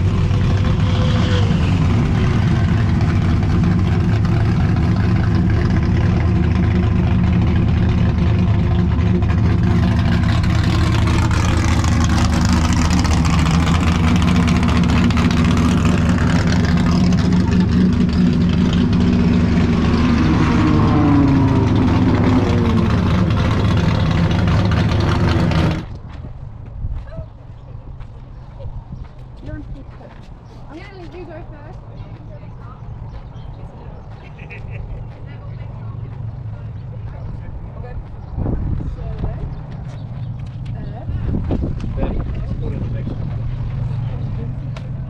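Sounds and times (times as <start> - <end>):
racing car engine running: 0.0 - 26.5.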